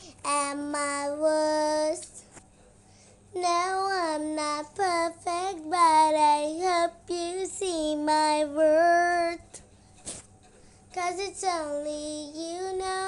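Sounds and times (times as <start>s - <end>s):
child singing: 0.0s - 2.2s, 3.4s - 9.6s, 10.9s - 13.0s
breaths: 2.3s - 3.3s, 9.7s - 10.9s.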